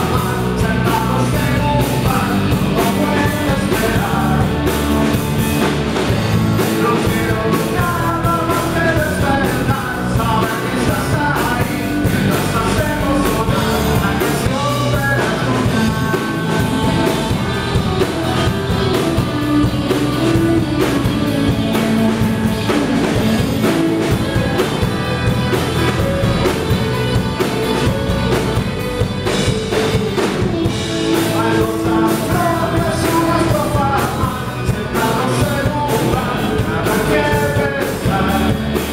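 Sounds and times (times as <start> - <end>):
person singing: 0.0 - 5.7, 6.5 - 38.9
rock band playing live: 0.0 - 38.9
steady drum beat: 0.0 - 38.9.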